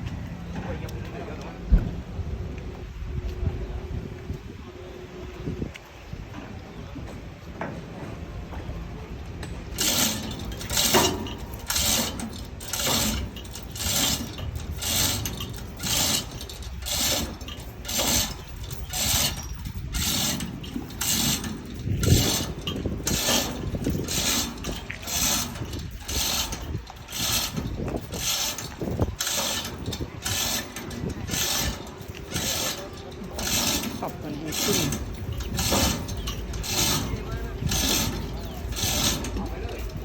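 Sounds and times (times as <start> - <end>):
mechanism making short strokes: 9.7 - 40.0.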